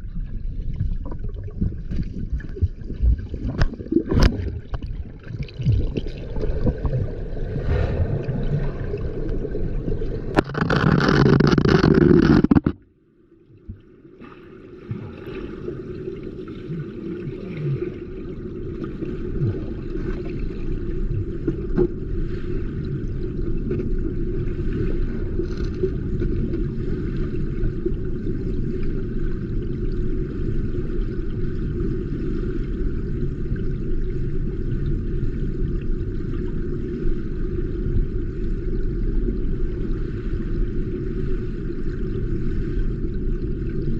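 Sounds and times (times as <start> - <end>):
stream water rushing and gurgling: 1.8 - 12.7.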